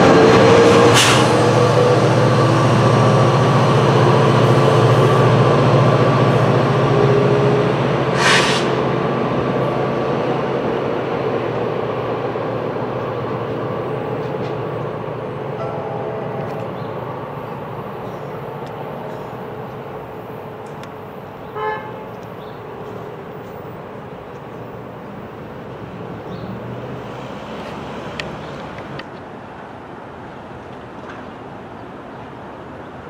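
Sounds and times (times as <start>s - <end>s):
train running through: 0.0s - 33.0s
train horn toot: 21.4s - 22.2s.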